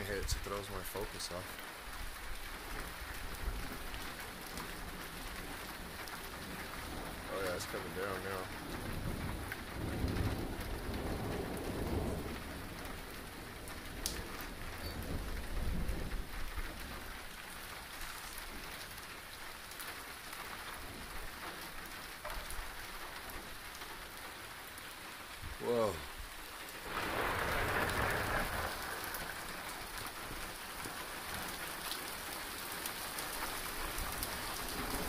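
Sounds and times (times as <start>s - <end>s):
heavy rain pouring: 0.0s - 35.0s
low rolling thunder: 6.4s - 17.0s, 26.8s - 30.4s.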